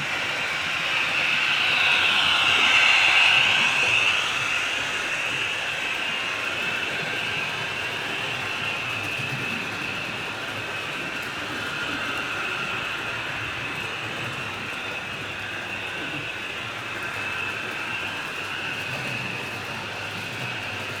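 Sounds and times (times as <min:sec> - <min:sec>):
model train whirring: 0:00.0 - 0:21.0.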